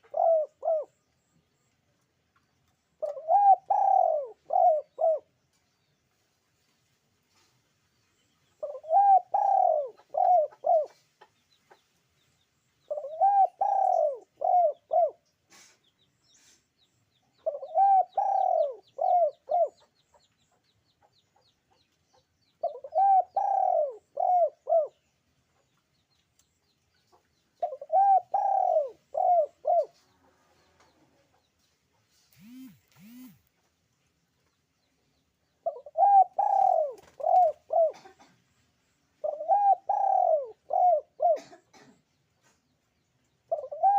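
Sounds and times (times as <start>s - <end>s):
dove cooing: 0.0s - 1.0s, 3.0s - 5.3s, 8.6s - 11.1s, 12.9s - 15.2s, 17.4s - 19.9s, 22.6s - 25.0s, 27.6s - 30.1s, 32.4s - 33.4s, 35.6s - 38.3s, 39.2s - 42.0s, 43.5s - 43.9s.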